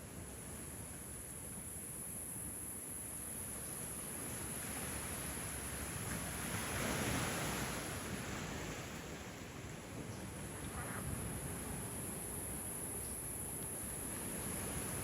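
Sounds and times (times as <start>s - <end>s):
wave washing on beach: 3.5s - 15.0s.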